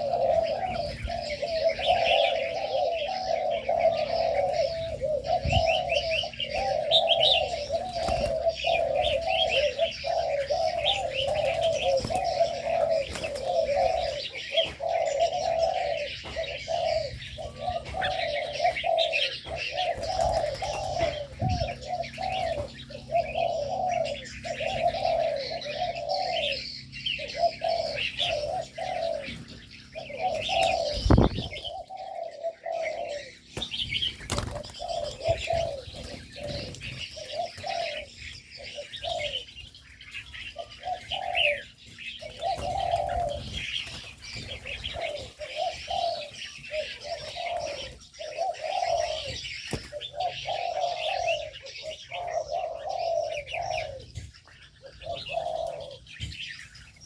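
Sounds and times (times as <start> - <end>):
doves cooing: 0.0 - 57.0
small birds chirping: 0.0 - 57.0.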